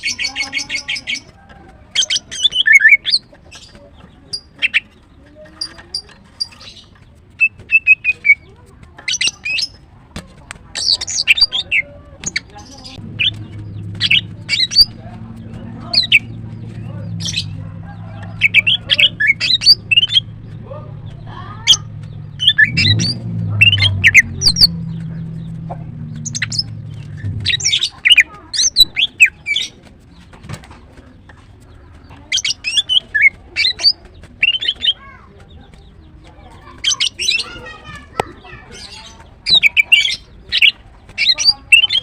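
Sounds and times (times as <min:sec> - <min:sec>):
bird chirping calls: 0:00.0 - 0:42.0
low hum: 0:12.9 - 0:28.0.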